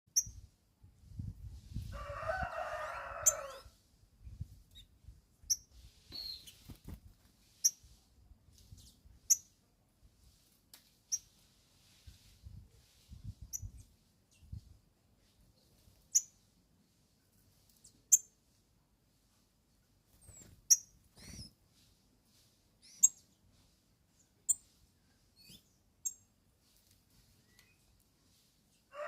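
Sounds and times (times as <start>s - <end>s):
bird sharp high chirp: 5.5s - 6.7s.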